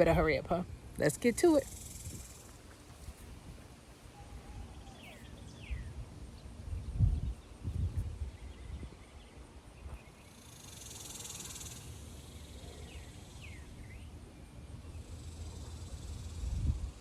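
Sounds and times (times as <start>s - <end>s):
high insect buzz: 1.6s - 3.1s, 10.3s - 13.6s.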